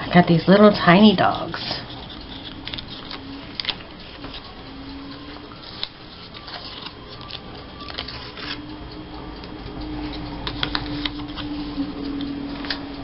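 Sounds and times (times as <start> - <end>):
paper rustling: 5.6 - 8.6.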